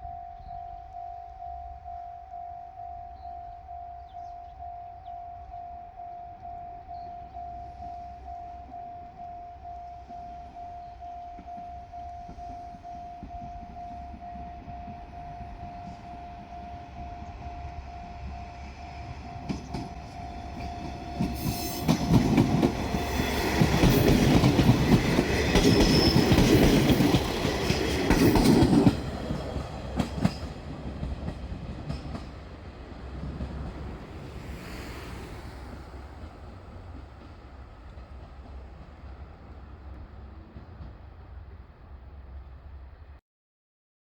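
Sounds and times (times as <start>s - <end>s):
level crossing alarm pulsing: 0.0s - 24.9s
train wheels clattering over rail joints: 19.4s - 34.5s.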